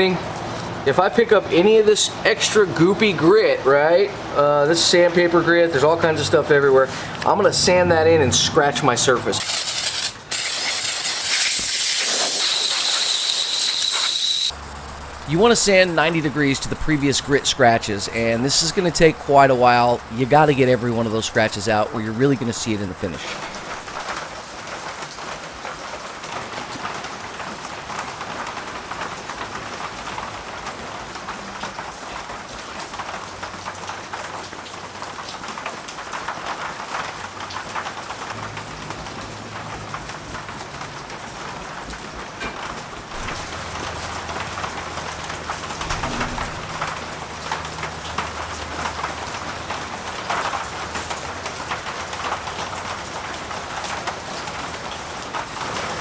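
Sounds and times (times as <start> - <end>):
wet sandpaper rasping on metal: 9.4 - 19.4.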